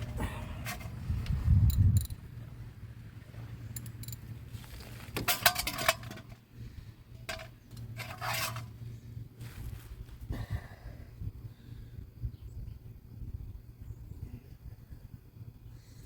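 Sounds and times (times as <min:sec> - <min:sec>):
metal tools clinking and rattling: 0:05.2 - 0:06.4, 0:07.3 - 0:08.7.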